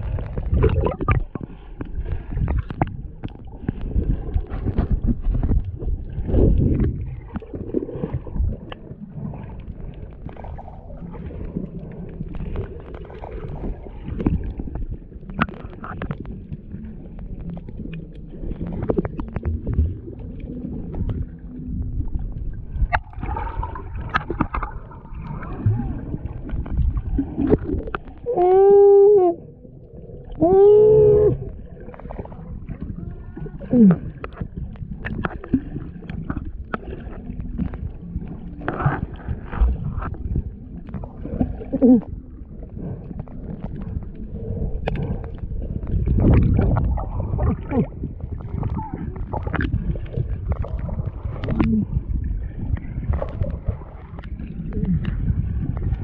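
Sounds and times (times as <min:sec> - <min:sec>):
wind on microphone: 0:00.0 - 0:08.7, 0:37.5 - 0:56.0
water noise from moving boat: 0:00.0 - 0:56.0.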